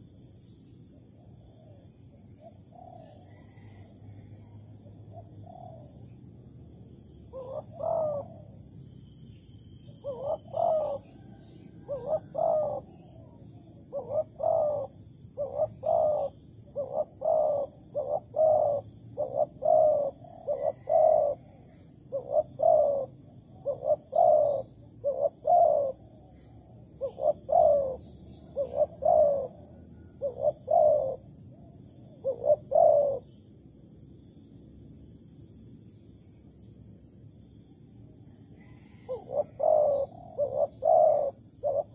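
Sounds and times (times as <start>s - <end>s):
dove cooing: 1.0s - 6.1s, 7.3s - 8.7s, 9.9s - 33.4s, 38.6s - 41.9s.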